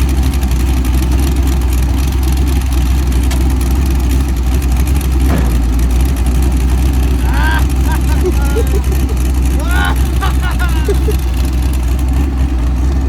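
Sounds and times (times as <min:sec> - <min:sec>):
engine idling with low rumble: 0:00.0 - 0:13.0.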